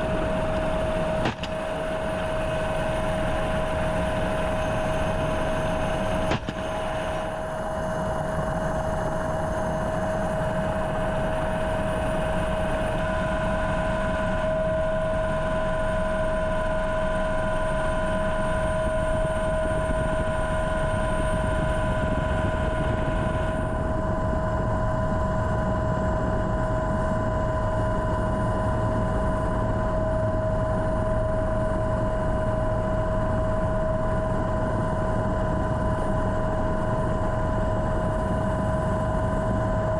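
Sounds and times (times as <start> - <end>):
high whine: 0.0 - 25.6
helicopter engine and rotor: 0.0 - 39.9.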